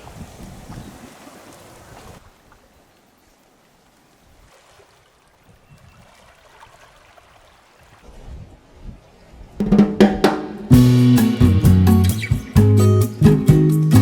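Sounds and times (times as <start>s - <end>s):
wind buffeting microphone: 0.0s - 2.3s, 7.9s - 9.6s
faint trickling water: 0.0s - 8.2s
surf: 9.4s - 14.0s.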